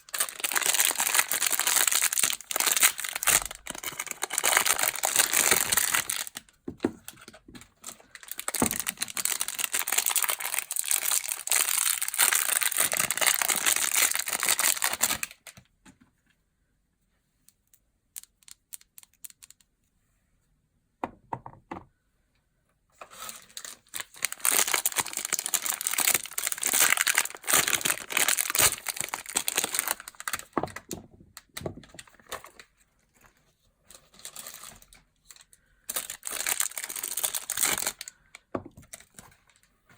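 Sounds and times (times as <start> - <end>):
packaging crinkling and tearing: 0.0 - 6.5, 7.1 - 15.6, 23.0 - 32.6, 34.0 - 38.2.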